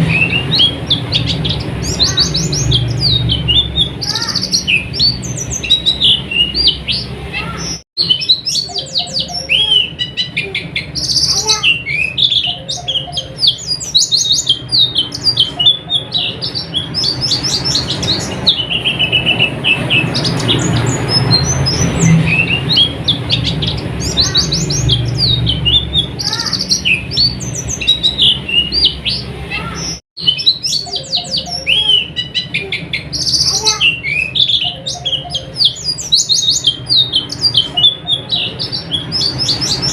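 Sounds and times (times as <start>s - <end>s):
white-eye twittering song: 0.0s - 39.9s.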